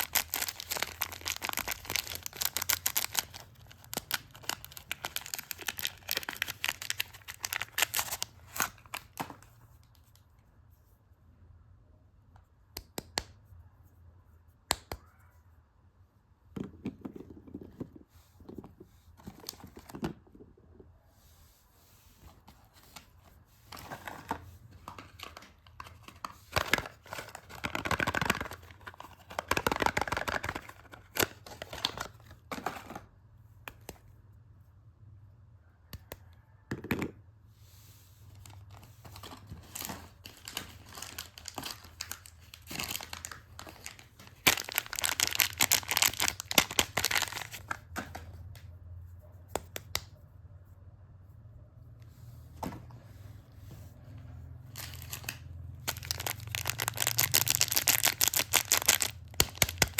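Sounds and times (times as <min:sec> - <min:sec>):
wrapping crinkling: 0:00.0 - 0:09.3, 0:23.7 - 0:32.8, 0:38.3 - 0:48.0, 0:54.7 - 0:59.9.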